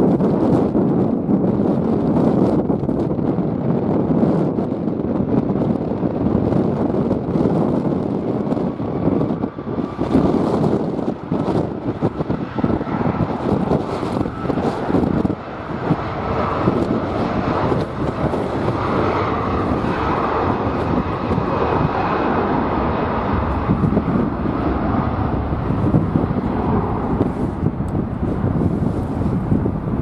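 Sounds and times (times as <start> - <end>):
jet engine rumble: 0.0 - 30.0
wind buffeting microphone: 0.0 - 30.0.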